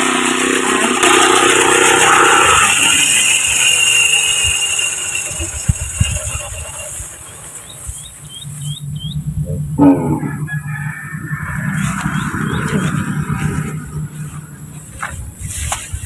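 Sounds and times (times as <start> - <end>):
small engine: 0.0 - 9.8
rising bird chirps: 3.9 - 15.0.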